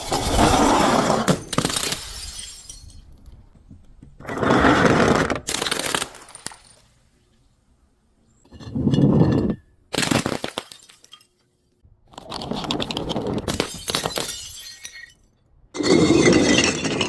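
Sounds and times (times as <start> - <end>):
glass bottles shattering: 0.0 - 3.1, 10.0 - 11.4, 13.5 - 17.0.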